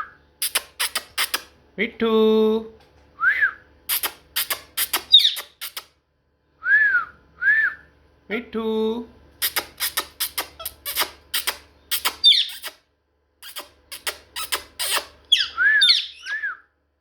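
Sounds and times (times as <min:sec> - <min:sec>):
parrot squeaking: 0:00.4 - 0:01.5, 0:03.9 - 0:05.9, 0:09.4 - 0:12.8, 0:13.4 - 0:16.5
parrot whistling: 0:04.9 - 0:05.8, 0:12.0 - 0:12.8, 0:13.4 - 0:16.6.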